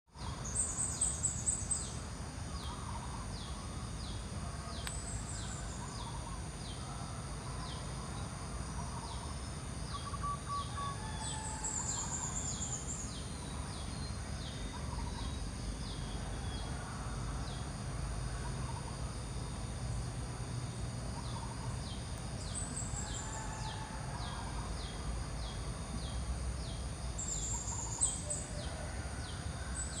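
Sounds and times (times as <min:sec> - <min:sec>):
constant low rumble: 0:00.1 - 0:30.0
fainter lower bird calls: 0:27.2 - 0:29.0.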